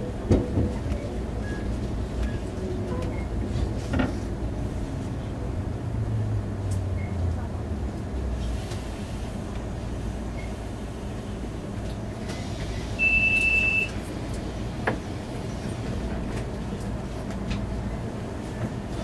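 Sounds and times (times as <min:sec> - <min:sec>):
train interior rumble: 0:00.0 - 0:19.0
high steady beep: 0:13.0 - 0:13.9.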